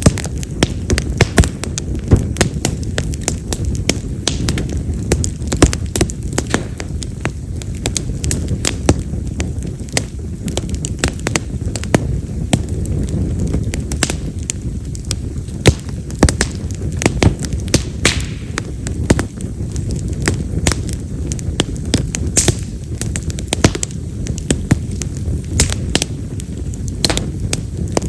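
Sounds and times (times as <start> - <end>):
campfire flame rumble: 0.0 - 28.0
firewood crackling and popping: 0.0 - 28.0.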